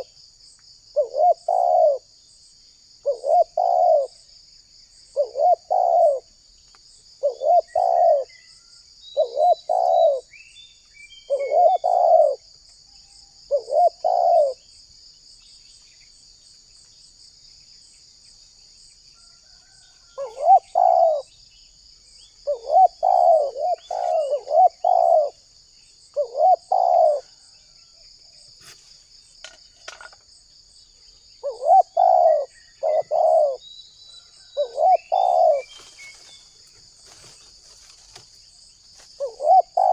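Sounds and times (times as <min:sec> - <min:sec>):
high insect drone: 0:00.0 - 0:39.9
dove cooing: 0:01.0 - 0:02.1, 0:03.0 - 0:04.2, 0:05.1 - 0:06.3, 0:07.2 - 0:08.4, 0:09.2 - 0:10.3, 0:11.3 - 0:12.5, 0:13.5 - 0:14.6, 0:20.2 - 0:21.3, 0:22.4 - 0:25.4, 0:26.1 - 0:27.5, 0:31.4 - 0:33.7, 0:34.4 - 0:36.3, 0:39.2 - 0:39.9
faint small bird chirps: 0:04.9 - 0:37.2.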